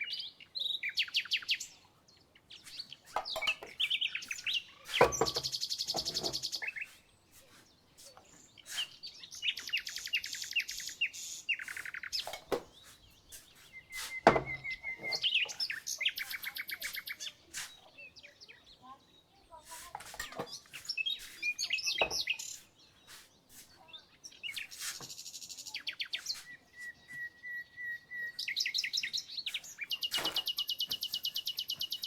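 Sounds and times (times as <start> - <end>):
songbirds singing: 0.0 - 32.0.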